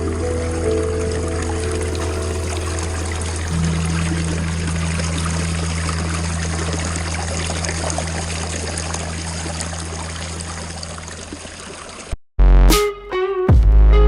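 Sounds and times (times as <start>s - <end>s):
low hum: 0.0s - 11.5s
water splashing over rocks: 1.3s - 12.2s.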